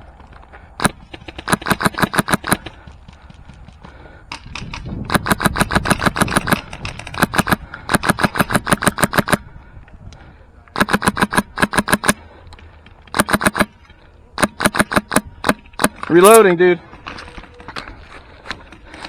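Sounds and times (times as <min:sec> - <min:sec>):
airsoft rifle firing full-auto: 0:00.8 - 0:02.8, 0:05.1 - 0:09.4, 0:10.8 - 0:12.2, 0:13.1 - 0:13.8, 0:14.4 - 0:16.2.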